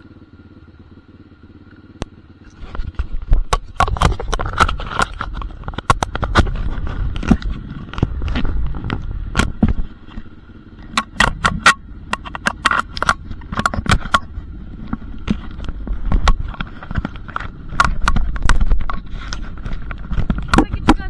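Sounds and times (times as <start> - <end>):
dirt bike engine rumble: 0.0 - 21.0
sharp crackles and clicks: 2.0 - 21.0.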